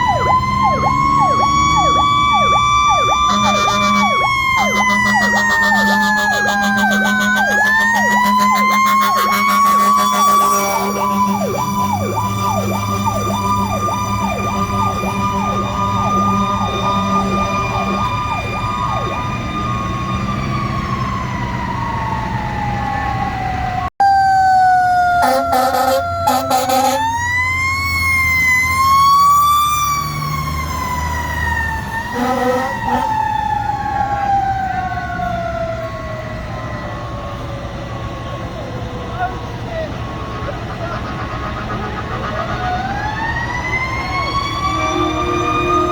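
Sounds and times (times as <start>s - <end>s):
diesel truck engine rumble: 0.0s - 23.7s, 25.3s - 45.9s
electronic yelp siren: 0.0s - 45.9s
mechanical siren wailing: 0.0s - 45.9s
air horn blasts: 3.1s - 13.8s, 25.2s - 27.2s, 32.1s - 33.3s, 44.6s - 45.9s.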